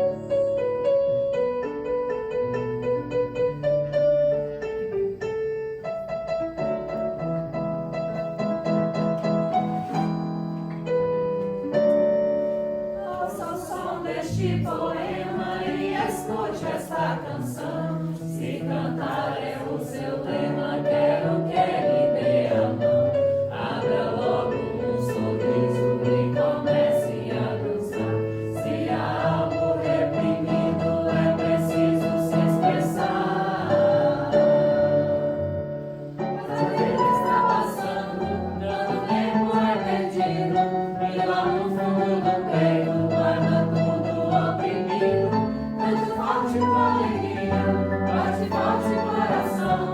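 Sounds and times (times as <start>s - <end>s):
instrumental accompaniment: 0.0s - 49.9s
group singing a hymn: 13.0s - 49.9s.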